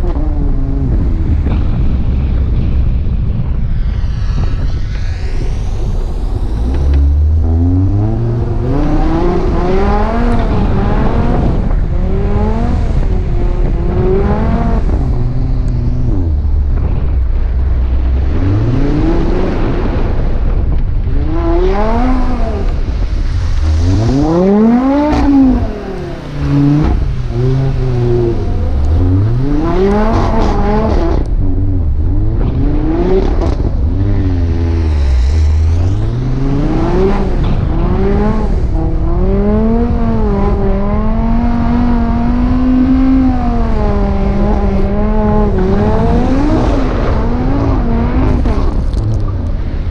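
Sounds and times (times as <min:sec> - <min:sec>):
car engine revving hard: 0:21.3 - 0:31.3, 0:32.4 - 0:49.0.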